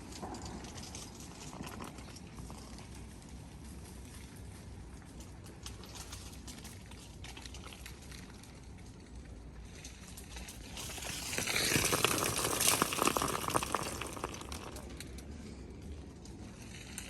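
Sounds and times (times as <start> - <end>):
ice crackling and clattering down: 0.0 - 15.3
ice ticking: 10.6 - 15.2.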